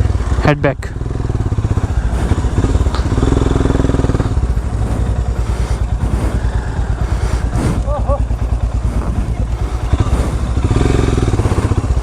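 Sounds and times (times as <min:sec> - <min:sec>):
motorcycle engine pulsing: 0:00.0 - 0:12.0.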